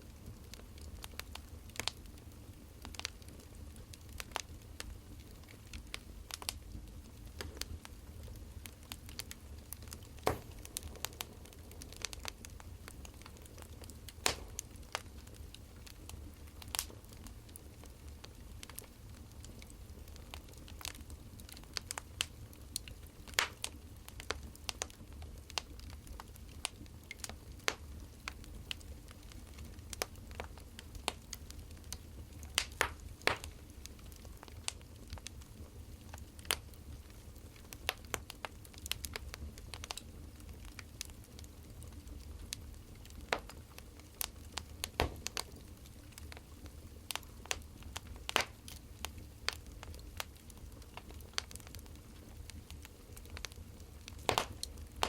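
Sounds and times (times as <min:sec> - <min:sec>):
wood fire crackling: 0:00.0 - 0:55.0
low steady rumble: 0:05.3 - 0:19.2.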